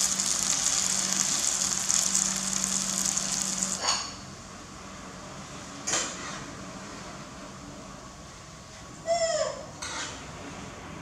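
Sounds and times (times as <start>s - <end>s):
patties sizzling in oil: 0.0s - 4.1s
spatula working in pan: 0.0s - 4.2s.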